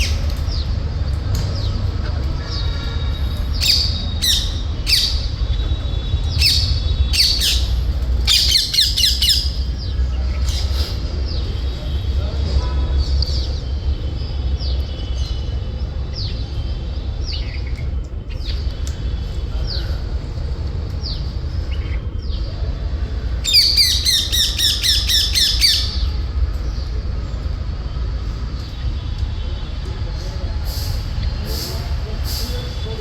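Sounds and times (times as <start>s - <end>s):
parakeet calling: 6.4s - 7.7s, 23.4s - 26.0s.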